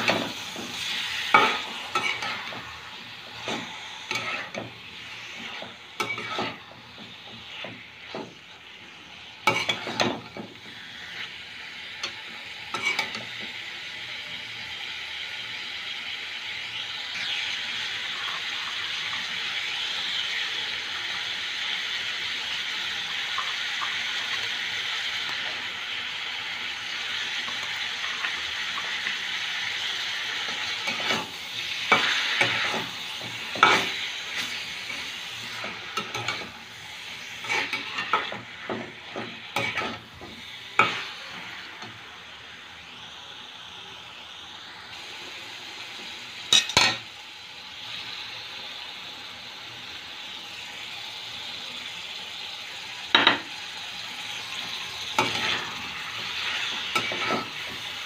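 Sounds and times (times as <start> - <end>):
spatula scraping a pan: 0.0 - 8.5, 9.4 - 11.4, 12.0 - 13.3, 30.3 - 41.5, 55.0 - 58.0
food sizzling in a wok: 0.0 - 58.0.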